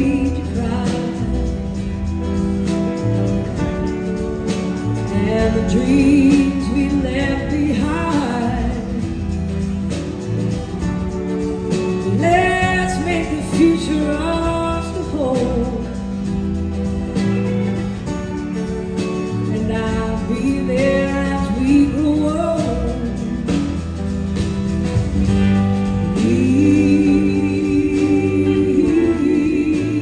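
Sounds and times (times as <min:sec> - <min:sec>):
singer's lead vocal: 0:00.0 - 0:01.9, 0:05.1 - 0:09.3, 0:12.1 - 0:16.2, 0:19.6 - 0:23.7, 0:26.0 - 0:30.0
band playing: 0:00.0 - 0:30.0.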